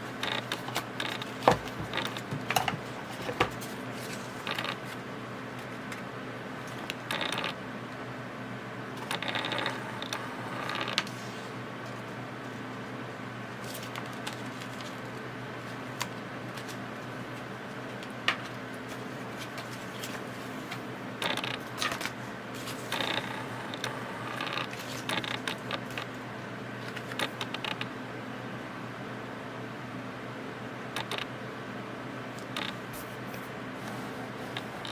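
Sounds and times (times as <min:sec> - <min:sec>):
steady low hum: 0:00.0 - 0:07.0, 0:31.6 - 0:34.9.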